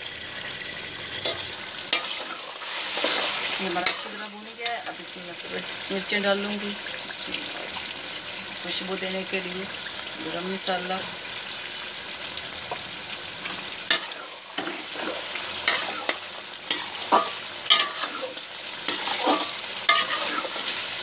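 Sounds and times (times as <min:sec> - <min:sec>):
meat sizzling in a metal pan: 0:00.0 - 0:21.0
metal spatula scraping pan: 0:01.2 - 0:05.1, 0:13.9 - 0:21.0.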